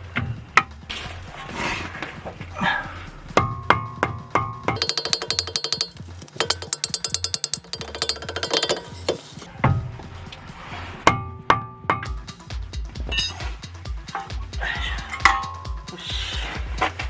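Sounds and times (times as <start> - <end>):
ratchet wrench clicking: 4.8 - 9.5
ringing metal clinks: 4.8 - 9.5, 15.2 - 15.9.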